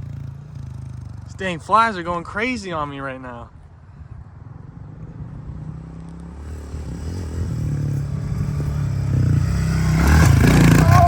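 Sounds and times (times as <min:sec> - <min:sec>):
motorbike engine approaching: 0:00.0 - 0:01.6, 0:04.0 - 0:11.0.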